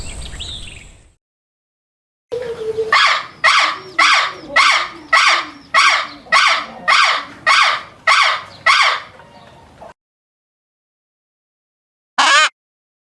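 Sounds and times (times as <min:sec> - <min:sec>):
wild animal harsh call: 0:02.9 - 0:09.1, 0:12.2 - 0:12.5.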